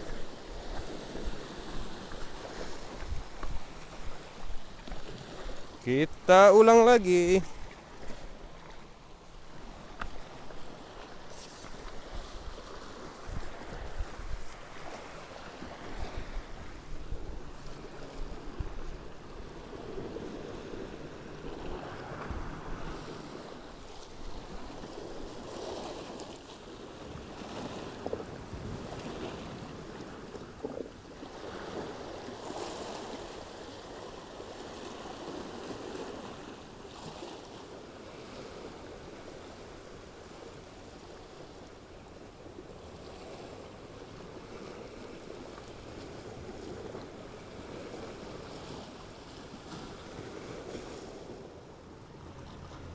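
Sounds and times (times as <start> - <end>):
wind buffeting microphone: 0.0 - 5.9, 7.5 - 26.2
sea waves splashing on shore: 0.0 - 52.9.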